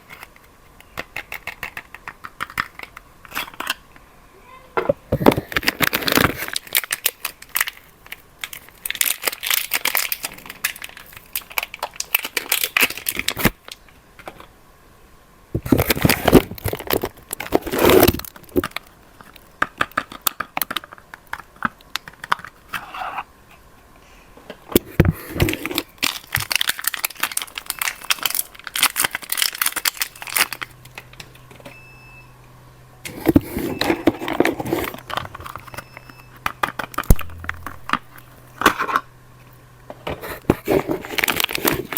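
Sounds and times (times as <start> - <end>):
wrappers crinkling and tearing: 5.4 - 13.8, 15.7 - 19.5, 25.2 - 31.1, 40.2 - 41.9.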